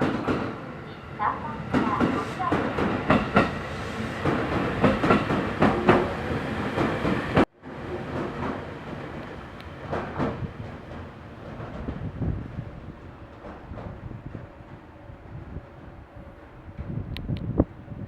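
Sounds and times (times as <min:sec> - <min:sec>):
train wheels clattering over rail joints: 0:06.8 - 0:14.4.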